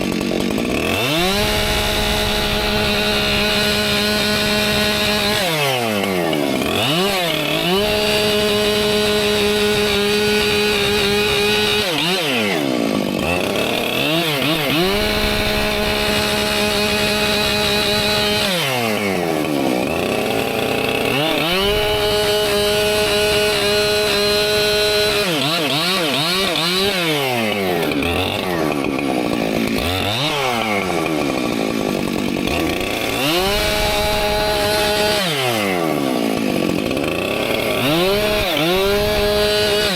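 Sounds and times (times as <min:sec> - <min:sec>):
chainsaw running at high revs: 0:00.0 - 0:39.9.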